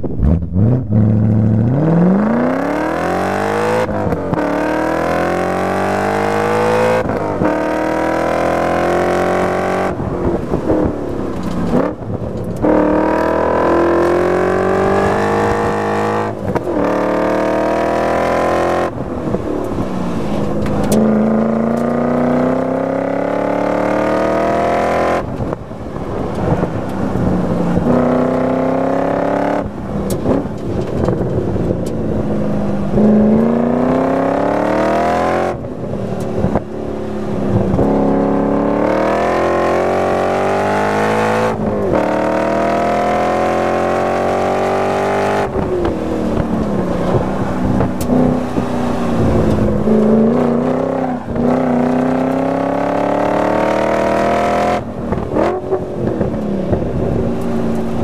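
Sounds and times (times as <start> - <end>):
car engine accelerating hard: 0.0 - 58.0.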